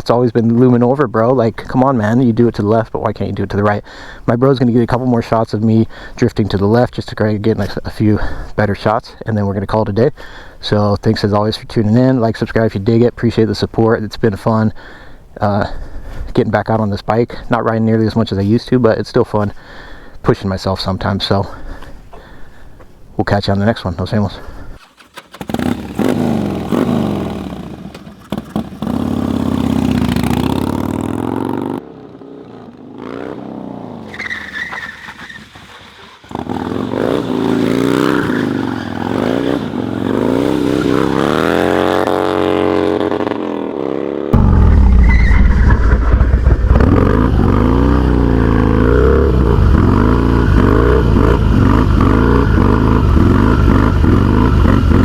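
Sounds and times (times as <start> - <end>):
motorcycle engine revving: 24.8 - 55.0.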